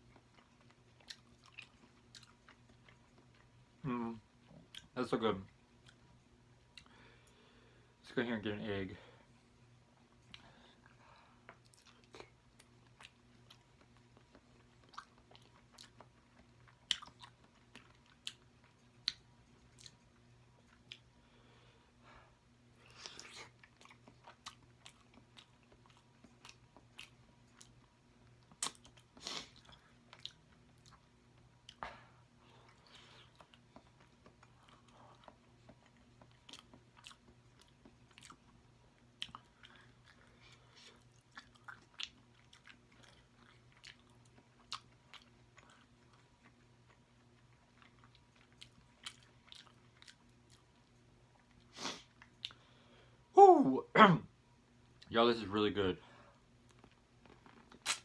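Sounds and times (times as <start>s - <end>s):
chewing and biting food: 0.0s - 3.7s, 10.0s - 21.2s, 22.8s - 31.8s, 32.4s - 52.7s
wet mouth clicks: 57.2s - 58.0s.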